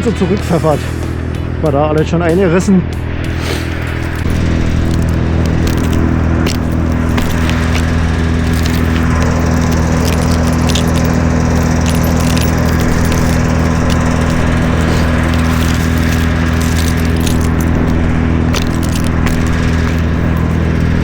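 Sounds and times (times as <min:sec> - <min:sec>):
engine running steadily: 0:00.0 - 0:21.0
metallic clinks and jingles: 0:04.0 - 0:21.0.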